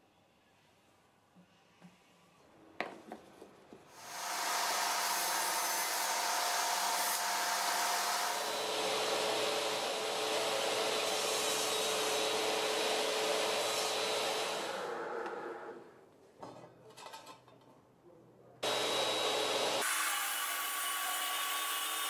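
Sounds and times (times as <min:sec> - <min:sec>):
table saw whining: 0:04.0 - 0:15.8, 0:18.6 - 0:22.0.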